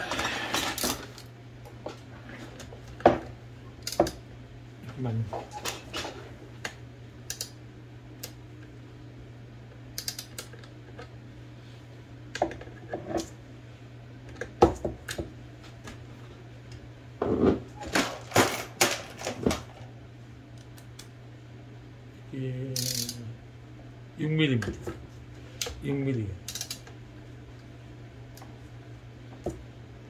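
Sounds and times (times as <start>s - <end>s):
faint hum: 0.0s - 30.0s
metal tools clicking on metal: 22.8s - 23.2s.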